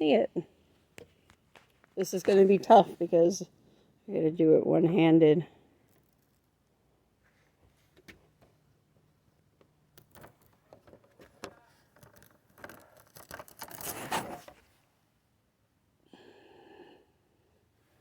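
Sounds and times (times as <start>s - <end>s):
filter scraping rustle: 11.2s - 14.8s.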